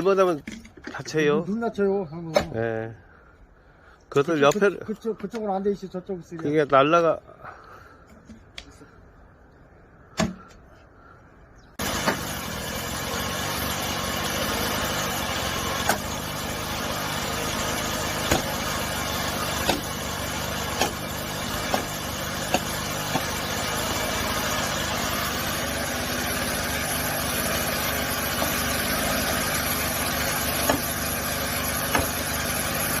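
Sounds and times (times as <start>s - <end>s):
engine running steadily: 11.8s - 33.0s
sharp knocks: 18.2s - 18.6s, 19.6s - 19.9s.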